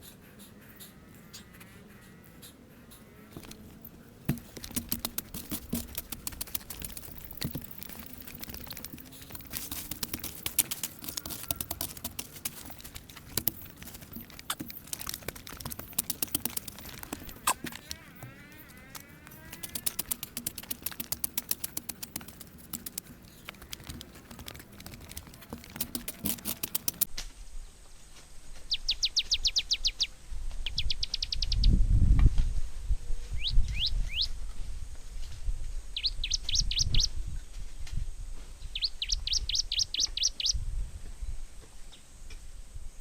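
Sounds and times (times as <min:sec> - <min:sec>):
fast dry clicking: 0:03.3 - 0:27.1.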